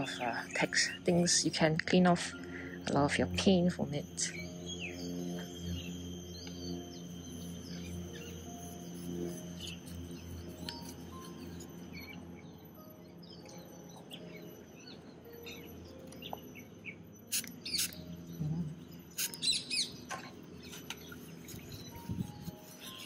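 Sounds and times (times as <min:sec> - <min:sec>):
wild birds chirping: 0:11.9 - 0:23.0.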